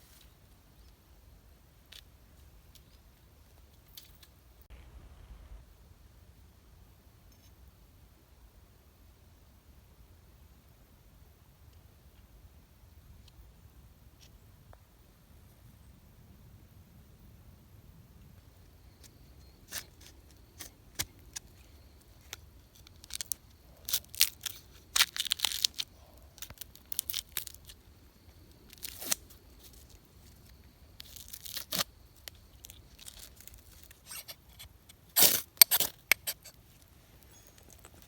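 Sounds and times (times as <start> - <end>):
crinkling and tearing thin material: 22.2 - 27.8, 28.7 - 36.6.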